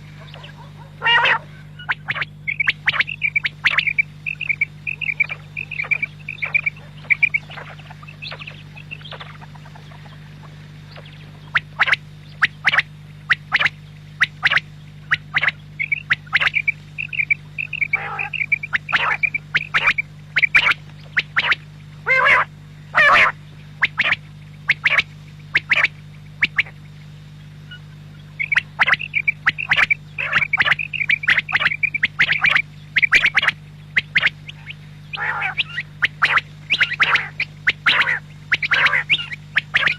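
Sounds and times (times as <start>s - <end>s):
quail calling: 0.0s - 26.9s, 27.6s - 39.9s
steady low hum: 0.0s - 39.9s.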